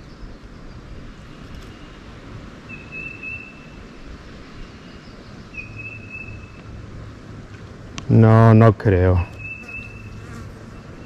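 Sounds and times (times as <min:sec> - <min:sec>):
low outdoor background noise: 0:00.0 - 0:11.0
whistled bird notes: 0:02.7 - 0:03.8, 0:04.7 - 0:06.6, 0:09.3 - 0:10.2.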